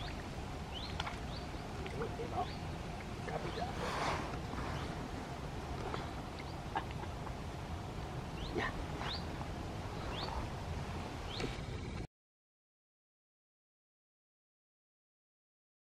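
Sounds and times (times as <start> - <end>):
bird chirping: 0.0 - 5.0, 5.8 - 7.3, 8.2 - 10.5, 11.2 - 11.8
low outdoor rumble: 0.0 - 12.1.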